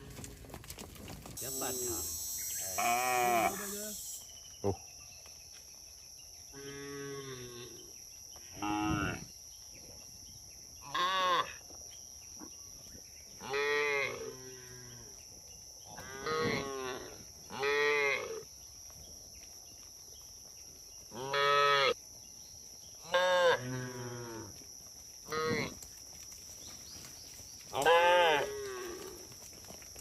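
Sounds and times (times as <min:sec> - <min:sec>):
cattle mooing: 0:02.6 - 0:03.8.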